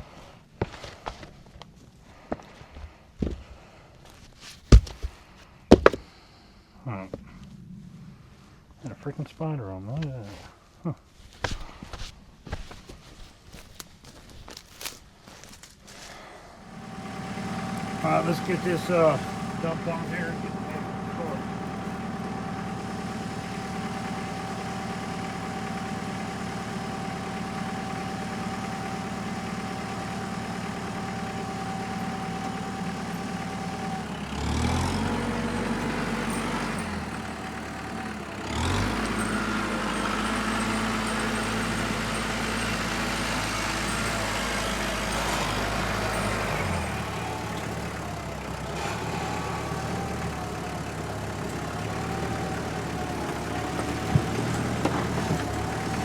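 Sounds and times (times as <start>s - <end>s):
engine idling and revving: 16.6s - 56.0s.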